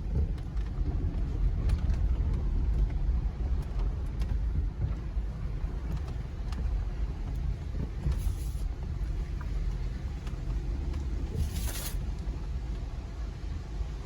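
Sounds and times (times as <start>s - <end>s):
car engine rumble from inside cab: 0.0s - 14.0s
short hiss: 11.4s - 12.0s.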